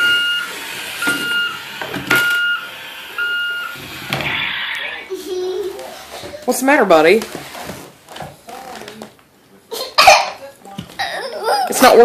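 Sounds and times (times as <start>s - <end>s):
toy electronic beeping: 0.0s - 5.0s.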